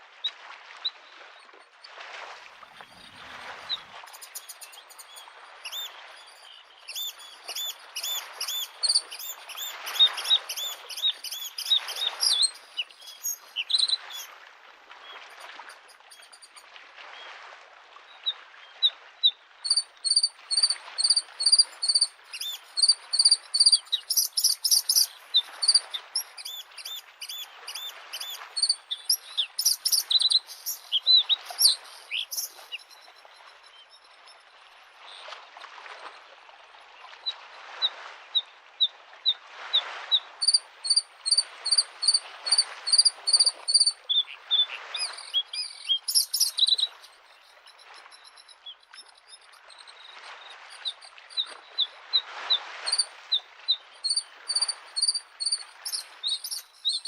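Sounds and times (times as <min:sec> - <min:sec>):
lake waves washing against shore: 0:00.0 - 0:17.7, 0:19.6 - 0:33.6, 0:39.4 - 0:57.0
bird singing: 0:02.8 - 0:14.3, 0:19.7 - 0:34.2, 0:40.4 - 0:50.2, 0:52.9 - 0:53.1, 0:54.0 - 0:57.0.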